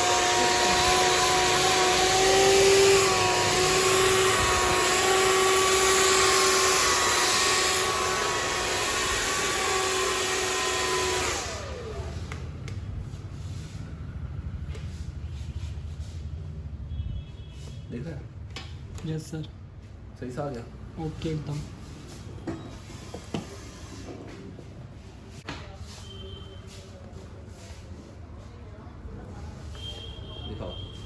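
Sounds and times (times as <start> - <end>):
motor winding down: 0.0 - 12.2
hair dryer running: 0.0 - 12.5.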